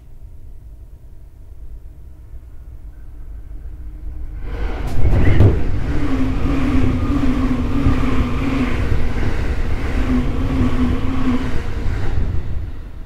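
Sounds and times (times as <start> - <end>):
low motor hum: 0.0 - 13.0
wheel-on-rail rumble: 3.7 - 13.0.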